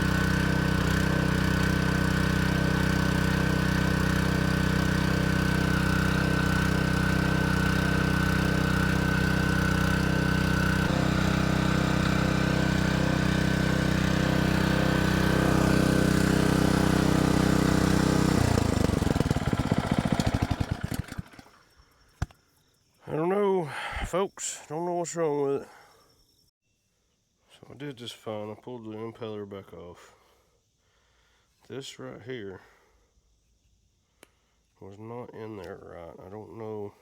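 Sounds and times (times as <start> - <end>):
water pump engine running: 0.0 - 21.5.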